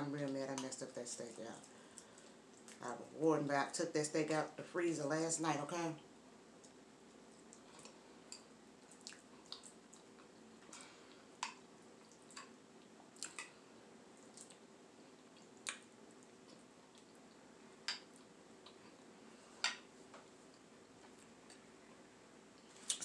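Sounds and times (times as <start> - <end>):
faint steady hum: 0.0 - 23.0
person chewing with mouth smacks: 7.4 - 13.6, 14.2 - 19.0.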